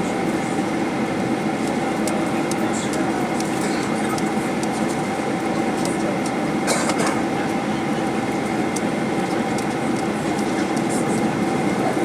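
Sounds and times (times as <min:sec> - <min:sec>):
aircraft cabin hum: 0:00.0 - 0:12.0.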